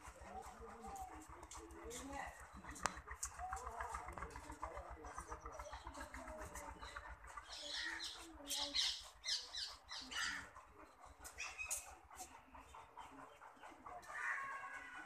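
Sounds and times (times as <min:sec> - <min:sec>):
birds making sharp high calls: 0:06.8 - 0:10.6.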